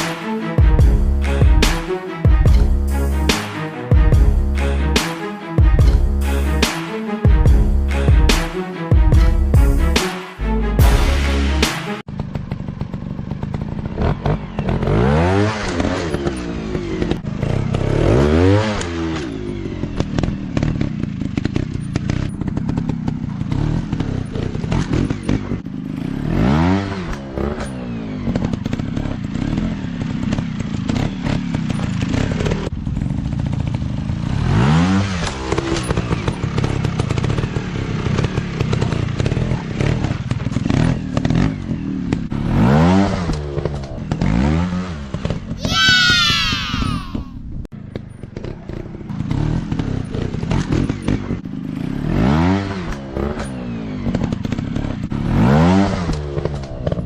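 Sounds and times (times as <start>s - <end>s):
dirt bike engines revving: 33.5s - 47.3s.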